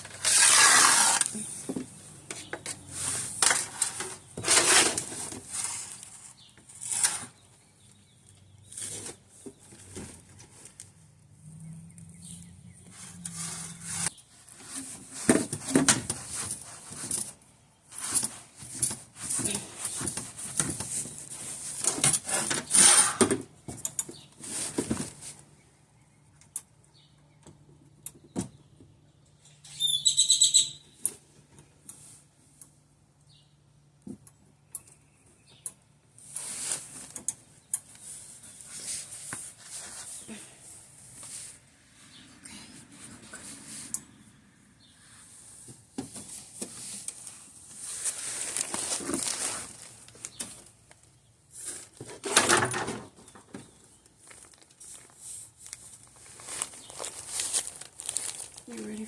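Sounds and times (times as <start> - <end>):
hand tools clicking and scraping: 0.0 - 7.5, 12.8 - 25.1
brief high squeak: 29.6 - 30.8.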